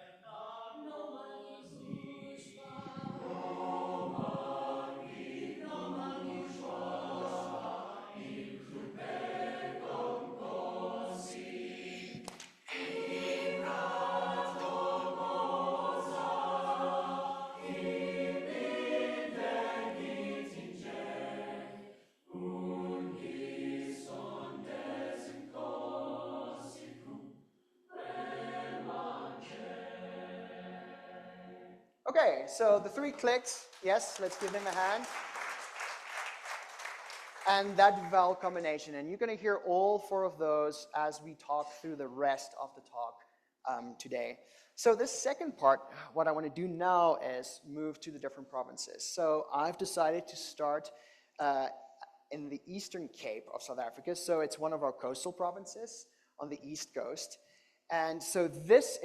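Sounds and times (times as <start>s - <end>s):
choir singing: 0.0s - 32.0s.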